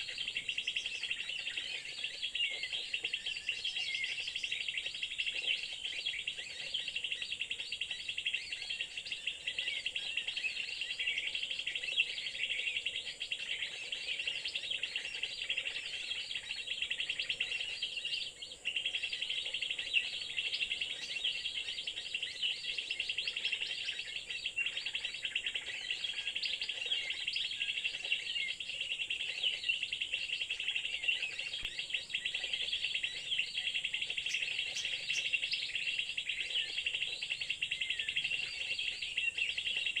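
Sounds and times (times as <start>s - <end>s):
high-pitched bird chirping: 30.8s - 39.9s.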